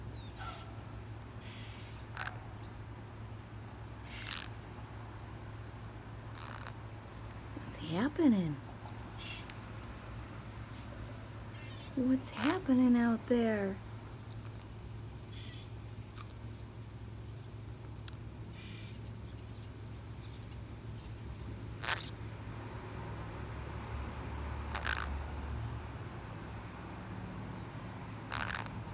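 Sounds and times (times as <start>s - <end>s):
parrot chirps and calls: 0.0s - 2.6s, 4.0s - 4.6s, 6.3s - 6.9s, 11.0s - 17.0s, 18.6s - 22.2s, 24.7s - 25.1s, 28.2s - 28.9s
low steady hum: 0.0s - 28.9s.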